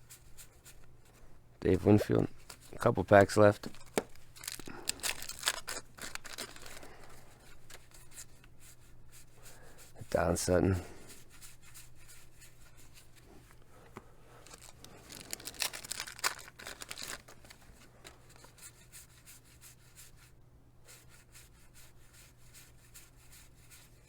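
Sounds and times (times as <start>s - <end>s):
cards flicking and rustling: 2.0s - 8.5s, 13.9s - 18.6s.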